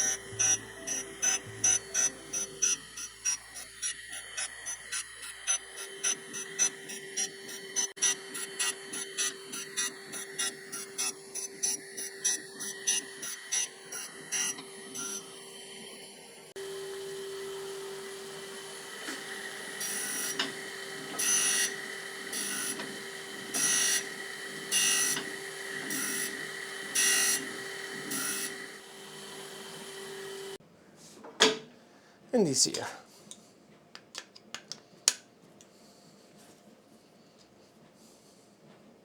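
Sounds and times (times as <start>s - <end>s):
machine tool humming: 0.0s - 30.6s.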